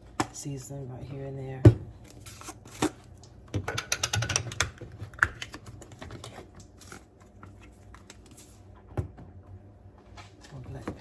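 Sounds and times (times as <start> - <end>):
plastic containers clicking and clattering: 3.5 - 6.4.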